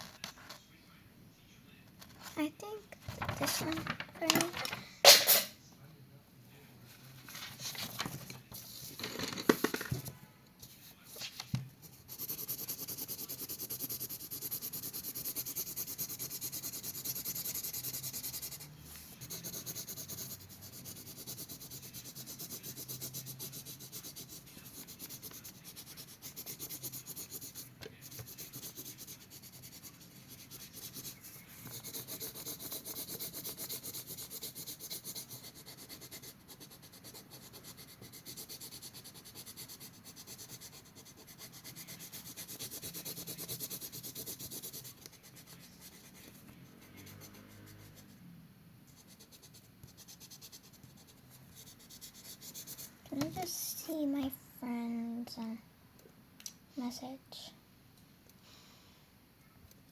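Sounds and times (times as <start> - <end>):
colouring on paper scratching: 10.6 - 48.2, 48.9 - 54.0.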